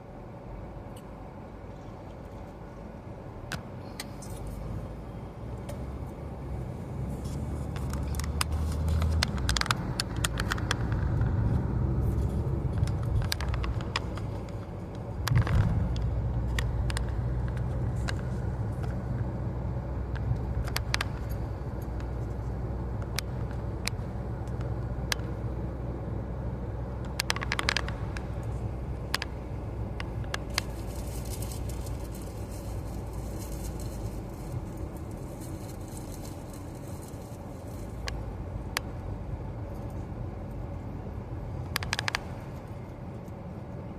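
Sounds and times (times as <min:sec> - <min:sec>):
road and engine rumble: 0:00.0 - 0:43.9
small clicks and knocks: 0:07.7 - 0:19.3, 0:20.1 - 0:25.4, 0:27.0 - 0:29.4, 0:41.6 - 0:43.4.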